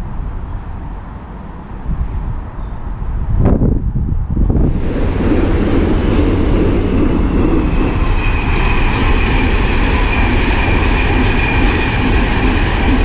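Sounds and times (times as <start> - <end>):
train rumbling past: 0.0 - 13.0
faint high whine: 4.5 - 13.0.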